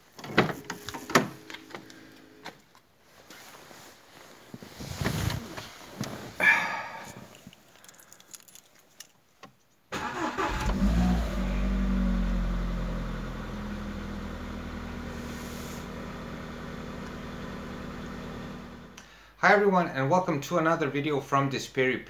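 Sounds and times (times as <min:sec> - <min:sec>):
rustling: 0:00.5 - 0:09.8
car engine cranking and idling: 0:09.9 - 0:19.0.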